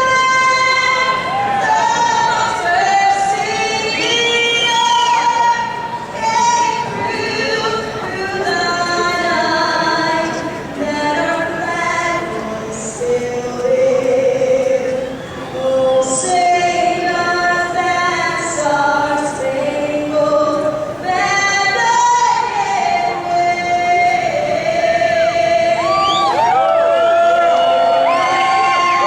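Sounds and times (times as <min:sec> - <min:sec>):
woman singing an anthem: 0:00.0 - 0:29.0.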